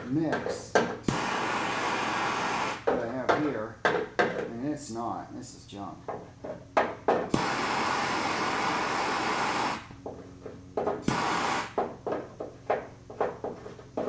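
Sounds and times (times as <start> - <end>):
gas torch hissing: 1.0 - 2.9, 7.3 - 10.0, 11.0 - 11.9
tools knocking on metal: 2.9 - 4.6, 6.0 - 7.3, 11.8 - 14.0.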